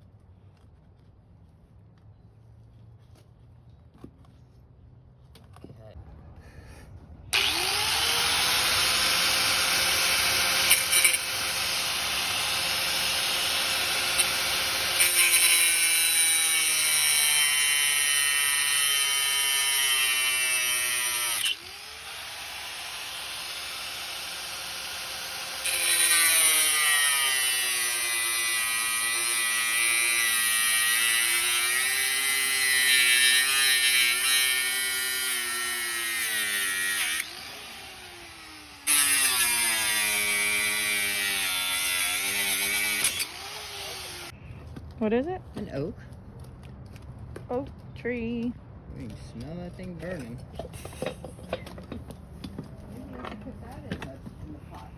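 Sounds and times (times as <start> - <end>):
power tool motor under load: 7.4 - 15.7.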